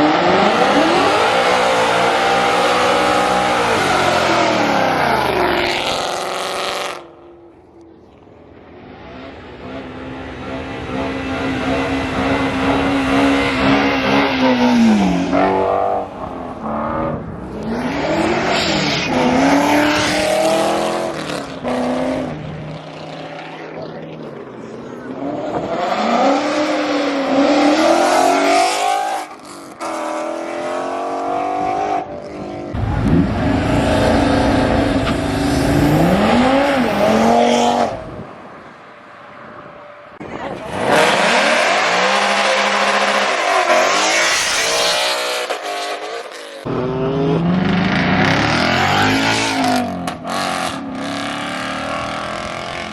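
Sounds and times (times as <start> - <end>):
car engine revving hard: 32.7 - 38.1, 46.7 - 52.9.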